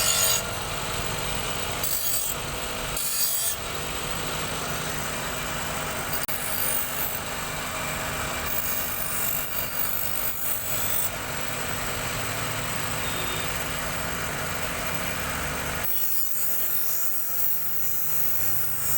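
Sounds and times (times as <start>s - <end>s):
knife grinding on sharpening wheel: 0.0s - 4.2s, 5.7s - 11.2s, 15.8s - 18.9s.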